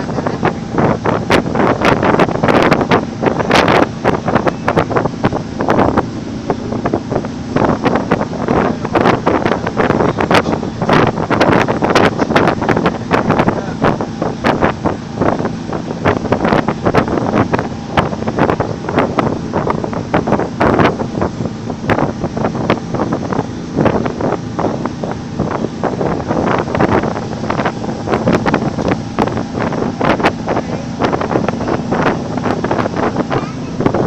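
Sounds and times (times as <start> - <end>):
ferry engine drone: 0.0 - 34.0
wind buffeting microphone: 0.0 - 34.0.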